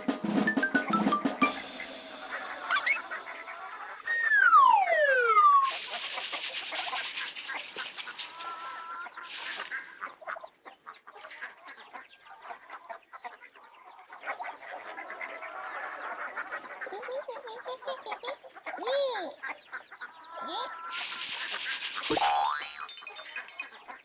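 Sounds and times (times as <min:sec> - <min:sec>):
poultry calling: 0:01.8 - 0:10.2, 0:14.3 - 0:21.9
bright chime: 0:12.1 - 0:15.1, 0:22.1 - 0:23.9.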